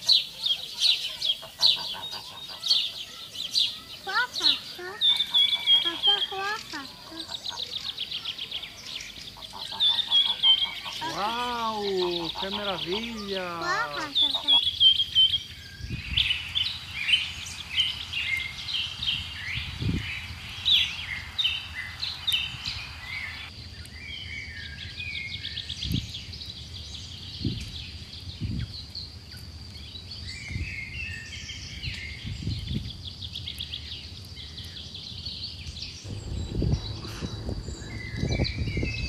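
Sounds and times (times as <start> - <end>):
background hiss: 0.0 - 23.8
birds chirping and trilling: 0.0 - 29.0, 29.9 - 39.0
soft low thuds: 36.1 - 39.0.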